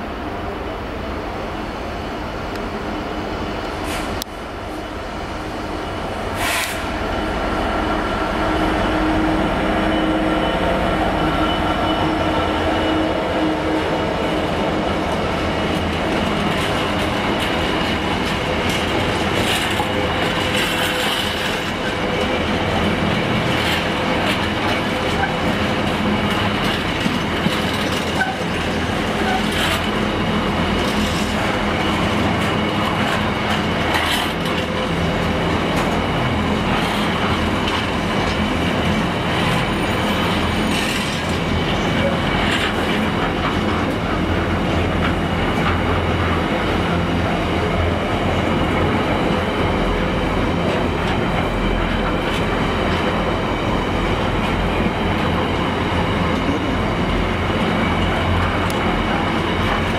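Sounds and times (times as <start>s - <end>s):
diesel locomotive engine passing: 0.0s - 59.9s
wagon wheels clattering on rails: 15.8s - 30.1s.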